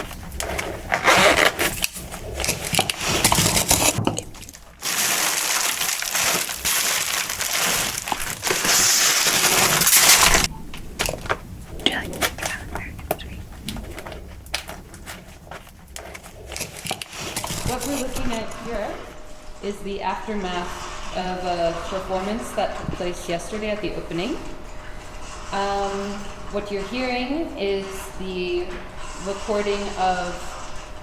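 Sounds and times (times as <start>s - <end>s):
shoes crushing packaging: 0.0s - 10.5s, 14.4s - 18.4s.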